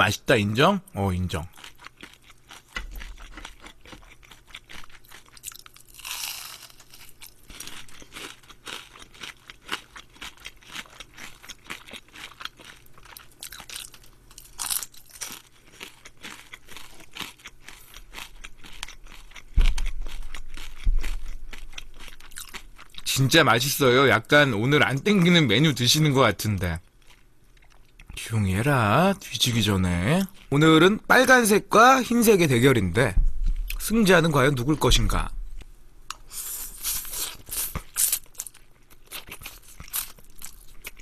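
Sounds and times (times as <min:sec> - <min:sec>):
crunching fried shrimp: 0:01.0 - 0:23.9, 0:36.1 - 0:41.0
heavy low thumps: 0:32.9 - 0:35.6.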